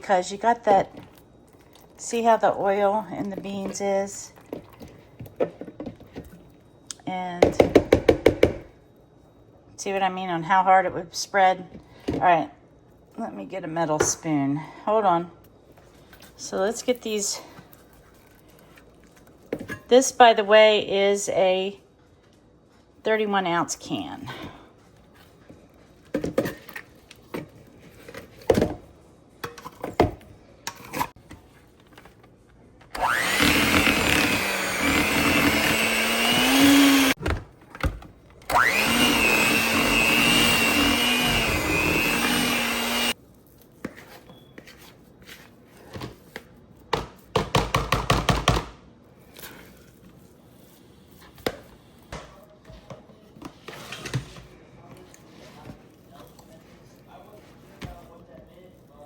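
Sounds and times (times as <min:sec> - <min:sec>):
electric blender running: 0:33.0 - 0:37.2, 0:38.5 - 0:43.2
short blender pulses: 0:33.0 - 0:37.2, 0:38.5 - 0:43.2.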